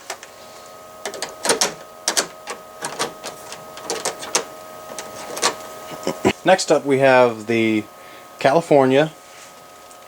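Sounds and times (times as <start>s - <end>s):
faint steady hum: 0.0s - 10.0s
model train coupler clicking: 1.0s - 5.6s.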